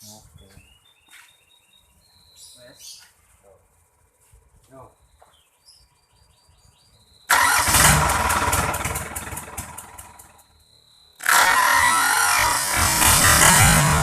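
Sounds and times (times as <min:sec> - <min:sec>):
diesel engine firing: 0:07.3 - 0:10.4, 0:11.2 - 0:14.0.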